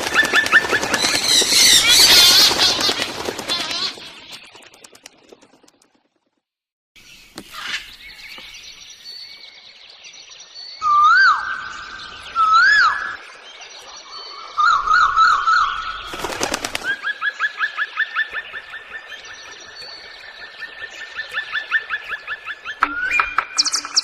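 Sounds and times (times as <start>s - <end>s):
birds whistling and trilling: 0.1s - 3.0s, 7.0s - 24.0s
thin high bird calls: 7.0s - 9.6s.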